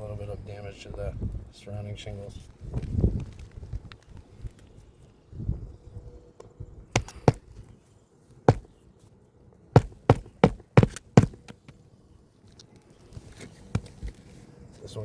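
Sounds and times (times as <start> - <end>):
hammer striking nails: 7.0 - 7.5, 8.5 - 8.7, 9.8 - 11.8.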